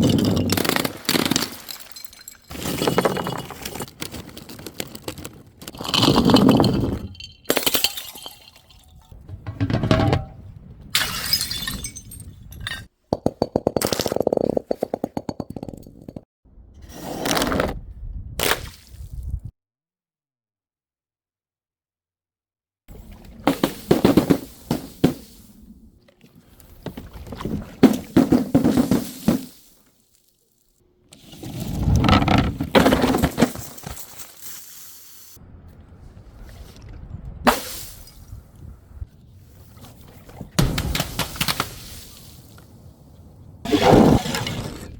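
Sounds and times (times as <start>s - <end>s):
glass clattering: 0.0s - 3.9s, 5.8s - 16.1s
glass bottles shattering: 0.0s - 9.2s, 11.0s - 14.3s
objects rattling: 0.0s - 10.6s, 31.2s - 34.5s.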